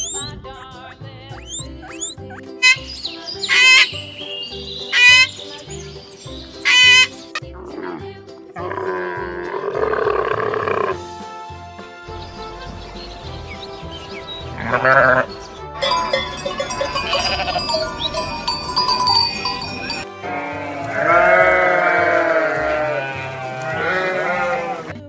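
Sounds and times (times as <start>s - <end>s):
background music: 0.0s - 25.0s
animal bleating: 1.5s - 4.0s, 4.9s - 5.4s, 6.6s - 11.1s, 14.6s - 25.0s.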